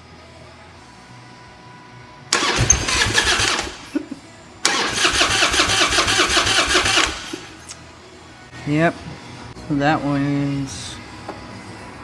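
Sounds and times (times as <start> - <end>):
motorcycle engine cranking on starter: 2.3 - 7.8.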